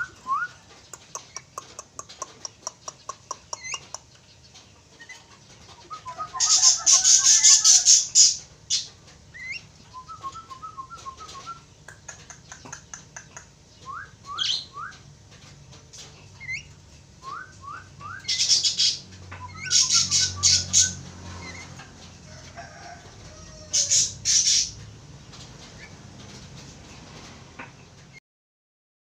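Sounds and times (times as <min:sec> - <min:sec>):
bird whistling: 0:00.0 - 0:00.6, 0:13.9 - 0:14.9, 0:17.2 - 0:21.0.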